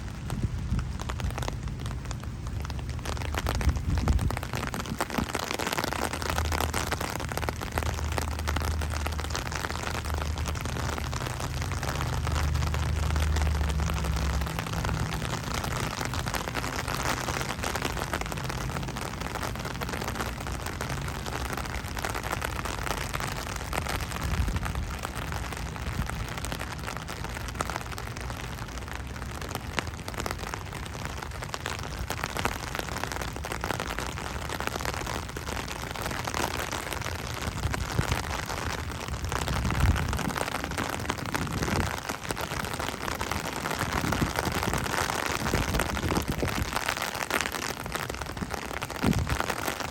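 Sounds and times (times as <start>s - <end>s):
wind gusts on microphone: 0.0s - 7.2s, 23.8s - 25.2s, 37.3s - 49.9s
steady rain falling: 0.0s - 49.9s.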